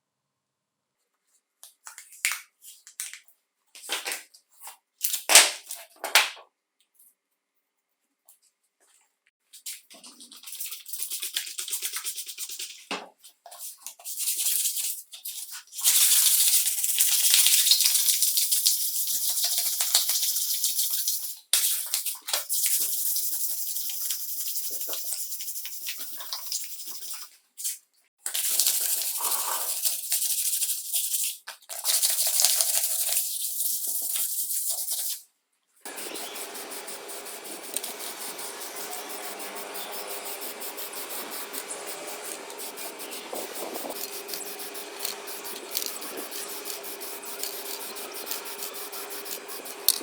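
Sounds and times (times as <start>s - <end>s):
hissing spray bursts: 35.9s - 50.0s.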